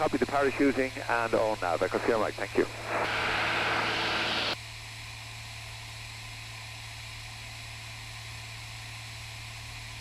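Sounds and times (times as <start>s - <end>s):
aircraft engine drone: 0.0s - 4.6s
headset hiss: 0.4s - 4.6s.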